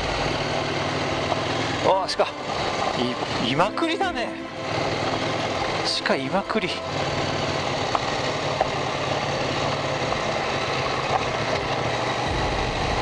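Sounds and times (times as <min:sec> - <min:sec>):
motorcycle engine running: 0:00.0 - 0:13.0
wind and road noise: 0:00.0 - 0:13.0
faint ticks: 0:04.3 - 0:12.4
deep low rumble: 0:12.3 - 0:13.0.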